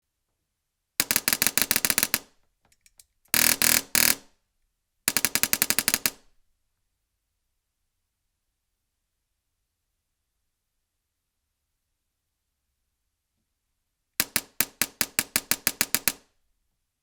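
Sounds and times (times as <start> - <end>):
airsoft gun full-auto bursts: 1.0 - 2.4, 3.3 - 4.3, 5.1 - 6.3, 14.2 - 16.2.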